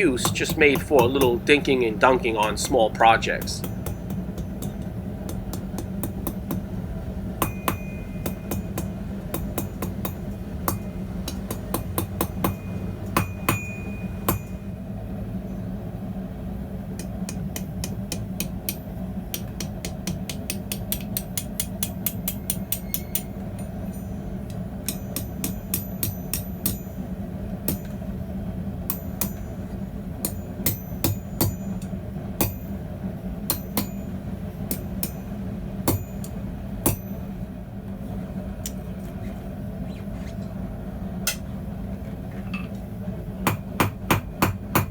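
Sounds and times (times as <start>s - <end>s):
hammer striking steel on anvil: 0.0s - 6.7s, 7.4s - 14.7s, 17.0s - 28.1s, 28.8s - 32.8s, 33.5s - 37.4s, 41.2s - 41.5s, 43.4s - 44.9s
low hum: 0.0s - 19.6s.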